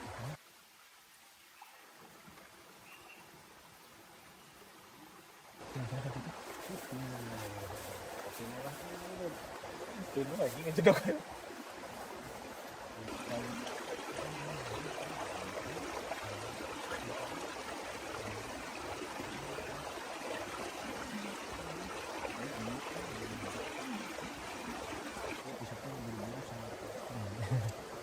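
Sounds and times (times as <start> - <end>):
running water: 0.0 - 28.0.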